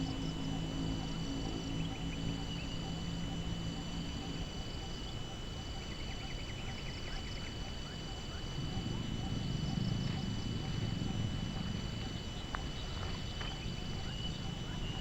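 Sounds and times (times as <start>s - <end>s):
high-pitched insect chorus: 0.0s - 15.0s
wind rumbling on microphone: 8.0s - 15.0s
low hum: 8.4s - 15.0s.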